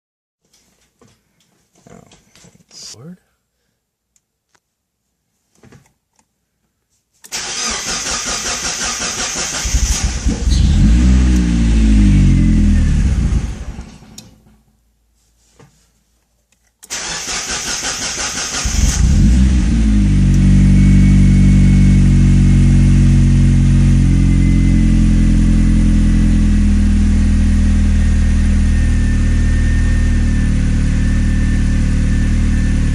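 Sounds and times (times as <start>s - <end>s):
engine starter cranking: 7.3s - 10.7s, 16.8s - 19.2s
engine running and idling: 18.5s - 32.9s.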